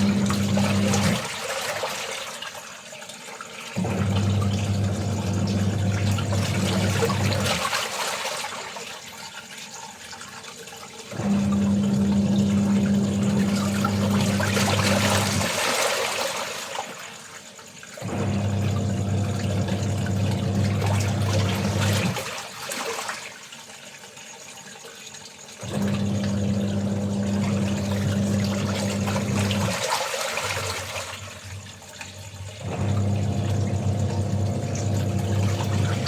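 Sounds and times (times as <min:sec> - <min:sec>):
washing machine motor humming: 0:00.0 - 0:01.6, 0:03.8 - 0:07.8, 0:11.1 - 0:16.2, 0:18.0 - 0:22.5, 0:25.6 - 0:36.0
water sloshing: 0:11.6 - 0:17.4, 0:18.3 - 0:23.5, 0:25.8 - 0:36.0.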